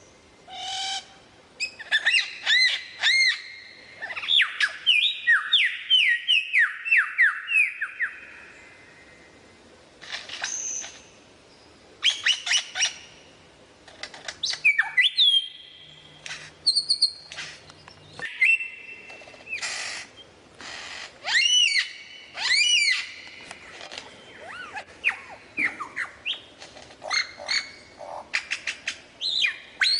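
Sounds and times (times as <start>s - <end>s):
lyrebird singing mimicry: 0.5s - 8.3s, 14.4s - 20.3s, 21.2s - 23.5s, 24.1s - 29.9s.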